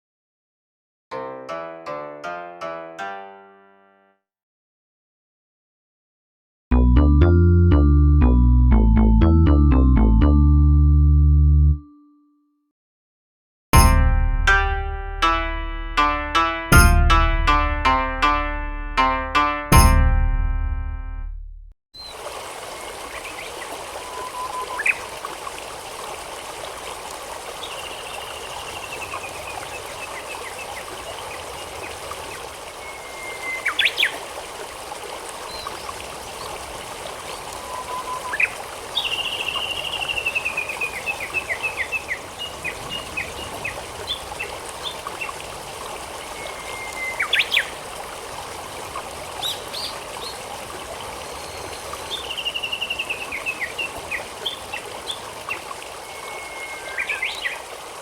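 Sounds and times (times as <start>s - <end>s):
stream trickling: 22.0s - 58.0s.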